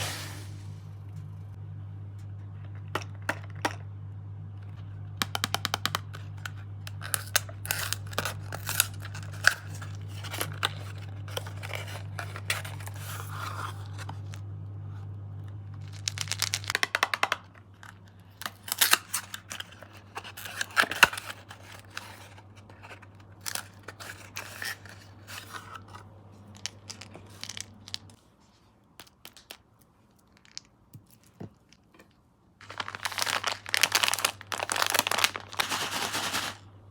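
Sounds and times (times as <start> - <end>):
low steady hum: 0.0 - 36.9
sweets clicking and tapping: 5.2 - 7.0
plastic wrappers crinkling and tearing: 6.2 - 14.4, 15.8 - 26.0, 32.6 - 36.6.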